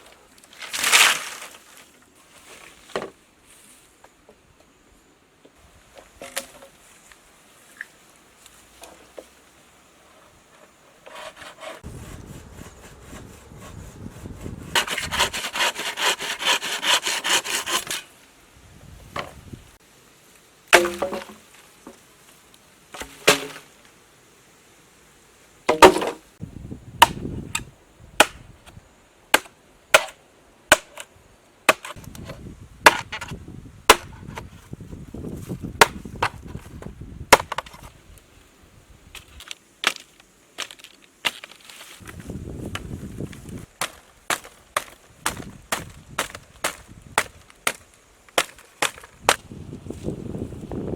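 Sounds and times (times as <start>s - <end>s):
hand rasping wood: 11.1s - 18.0s.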